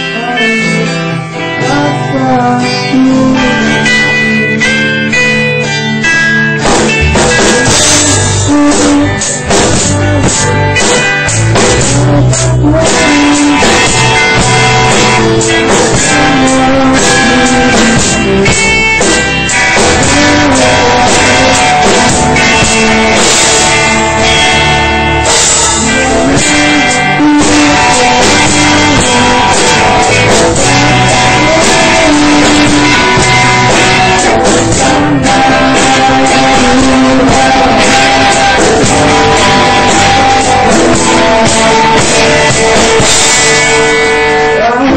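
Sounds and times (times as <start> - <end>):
person singing: 0.0 - 44.9
rock band playing: 0.0 - 44.9.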